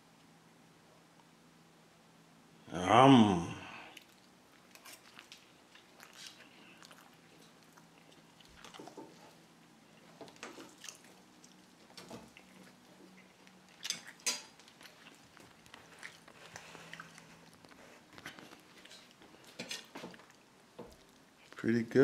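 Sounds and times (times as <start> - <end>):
person chewing: 3.9 - 21.6.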